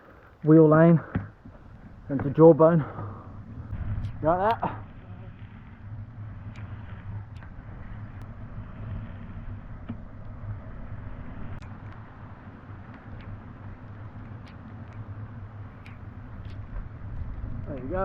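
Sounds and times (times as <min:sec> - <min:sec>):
bicycle road noise rumble: 0:00.0 - 0:18.0
wind noise: 0:00.9 - 0:18.0
sharp ticks: 0:11.6 - 0:16.8.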